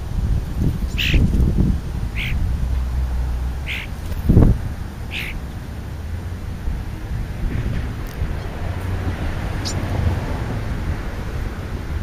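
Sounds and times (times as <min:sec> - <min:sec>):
bird scratchy calls: 0:00.8 - 0:01.4, 0:02.1 - 0:02.4, 0:03.6 - 0:04.4, 0:05.1 - 0:05.5, 0:09.6 - 0:09.8.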